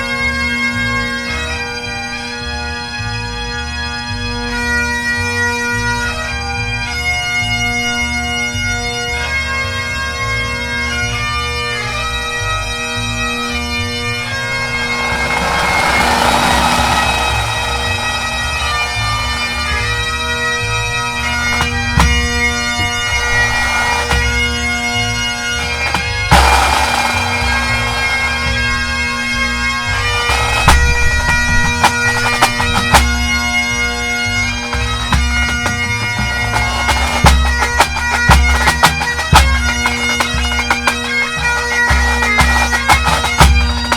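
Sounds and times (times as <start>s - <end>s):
bagpipes playing a tune: 0.0s - 43.9s
snare and bass drums: 14.6s - 20.1s, 21.3s - 33.4s, 34.7s - 43.9s.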